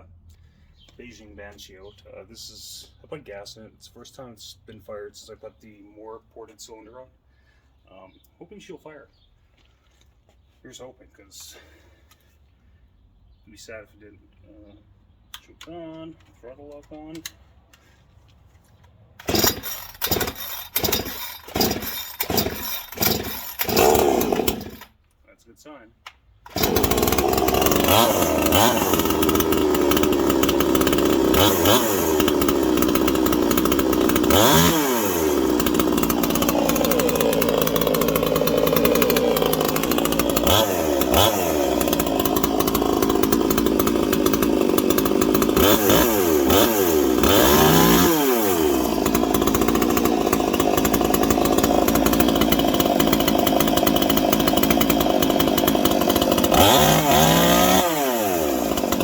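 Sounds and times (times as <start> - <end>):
chainsaw running: 19.2 - 25.0, 26.5 - 59.0.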